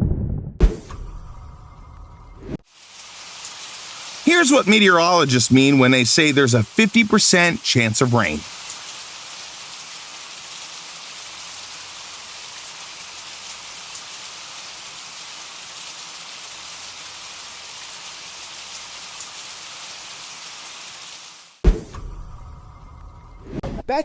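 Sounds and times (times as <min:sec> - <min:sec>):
rain falling: 0:02.6 - 0:21.6.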